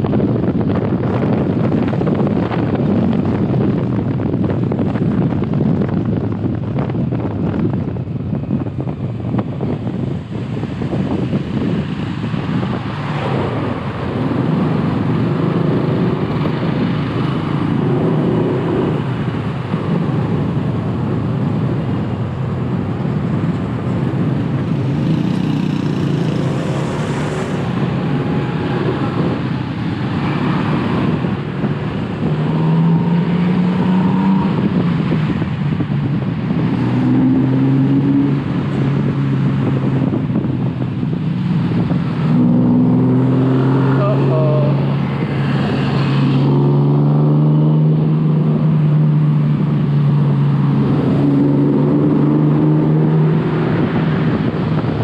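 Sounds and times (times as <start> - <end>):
wind and road noise: 0.0 - 55.0
motorcycle engine running: 22.4 - 30.3.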